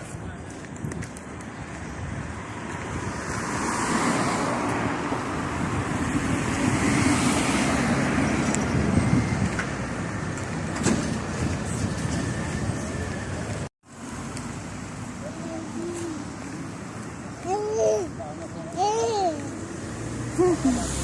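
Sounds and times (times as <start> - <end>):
vehicles passing by: 0.0 - 21.0.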